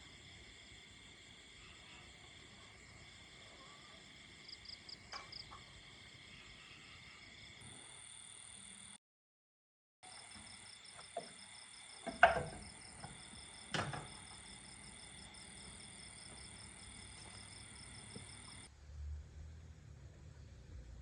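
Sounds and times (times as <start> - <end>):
crickets and insects chirping: 0.0 - 9.0, 10.0 - 18.7
knocks: 12.0 - 14.3.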